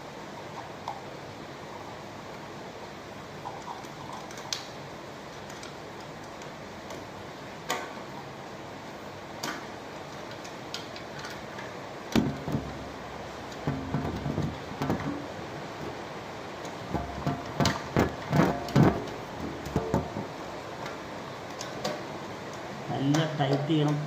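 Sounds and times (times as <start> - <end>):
steady hiss: 0.0 - 24.0
loud knock: 13.7 - 15.2.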